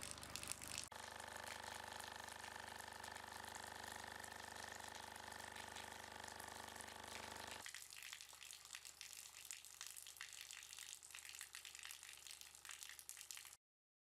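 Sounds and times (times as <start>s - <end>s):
running water trickling: 0.0s - 0.9s
faint electric hum: 0.0s - 8.4s.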